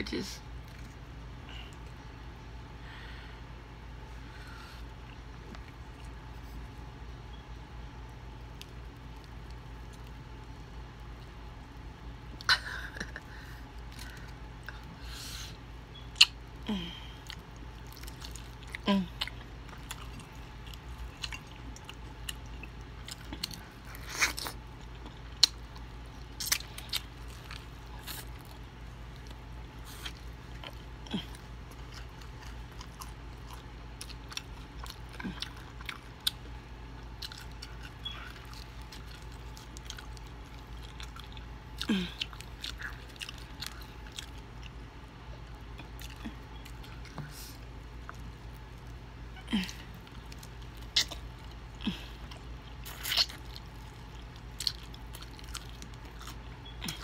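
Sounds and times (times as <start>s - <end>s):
chewing fried chicken: 0.1s - 57.0s
crunches of breaded skin: 12.6s - 44.8s, 45.7s - 57.0s
wet mouth clicks: 16.1s - 16.4s.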